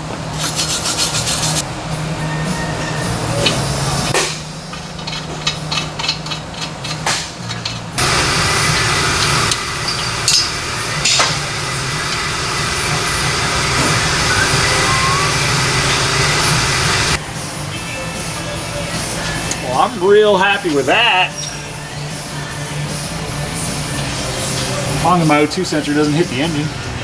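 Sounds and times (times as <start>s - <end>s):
welder crackling hiss: 8.0s - 17.2s.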